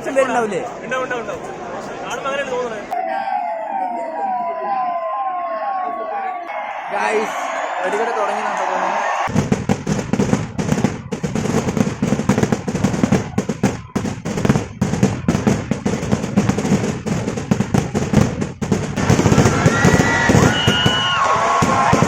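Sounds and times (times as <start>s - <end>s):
whistling fireworks: 9.2s - 22.0s
firecracker bangs: 9.3s - 22.0s.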